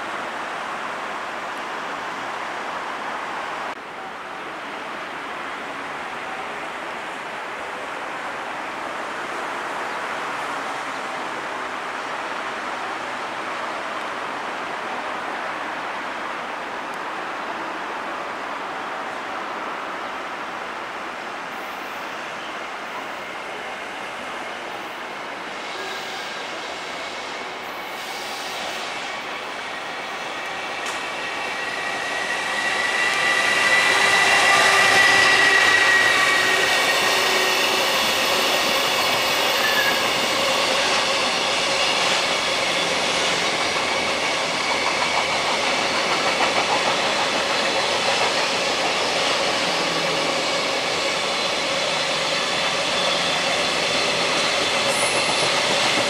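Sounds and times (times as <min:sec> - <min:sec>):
electric locomotive passing: 0:00.0 - 0:56.0
clatter of train wheels: 0:30.8 - 0:56.0.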